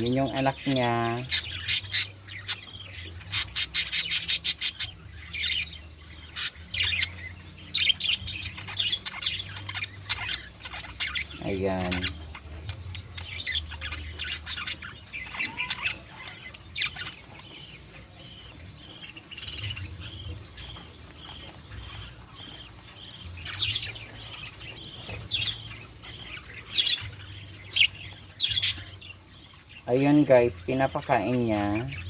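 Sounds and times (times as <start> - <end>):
budgerigars chirping and chattering: 0.0 - 32.0
budgerigar squawks: 13.4 - 17.2.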